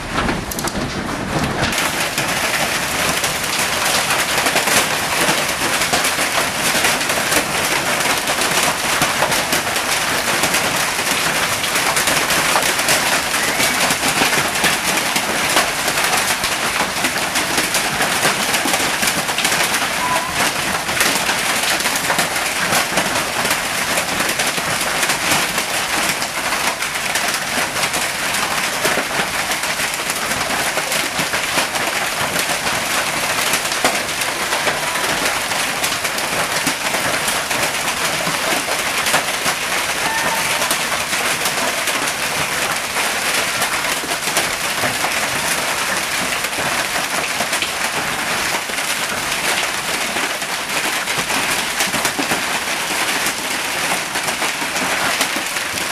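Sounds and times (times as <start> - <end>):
hail and heavy rain pelting: 0.0 - 55.9.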